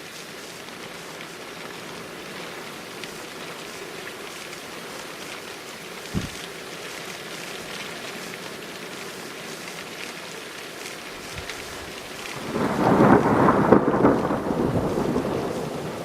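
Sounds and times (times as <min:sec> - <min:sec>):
steady rain hissing: 0:00.0 - 0:16.0
thunder crack rolling: 0:12.4 - 0:16.0.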